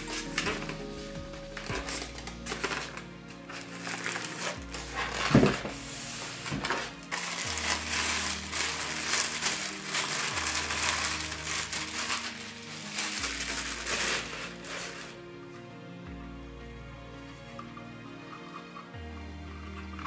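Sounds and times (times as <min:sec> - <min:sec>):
packing material crinkling: 0:00.0 - 0:15.2
background music: 0:00.0 - 0:20.0.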